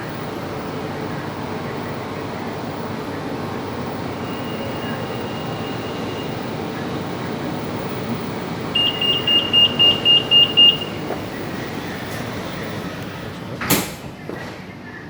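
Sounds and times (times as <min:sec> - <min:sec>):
train hum: 0:00.0 - 0:15.0
rapid high beeps: 0:08.8 - 0:11.0
doors shutting with thud: 0:08.8 - 0:14.7.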